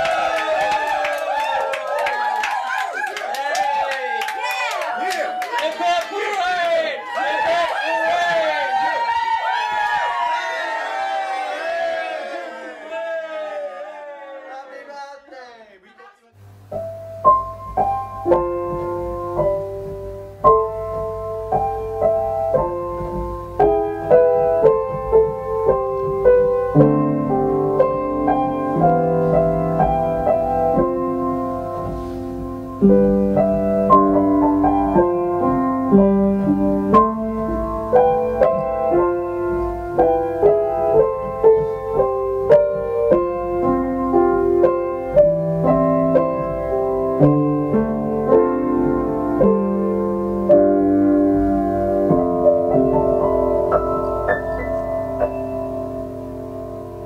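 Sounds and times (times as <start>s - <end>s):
solo piano melody: 16.4s - 57.0s.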